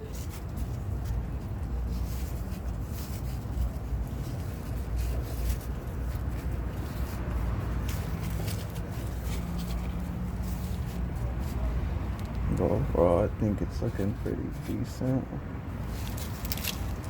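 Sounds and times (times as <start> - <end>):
hands rubbing wrap: 0.0 - 12.7, 15.8 - 17.0.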